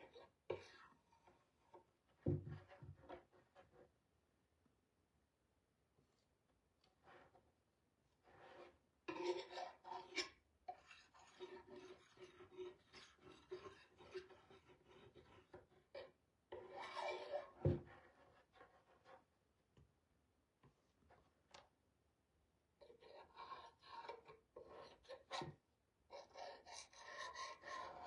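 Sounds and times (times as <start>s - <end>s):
painting tool scraping paint: 8.2s - 19.3s, 22.8s - 28.0s.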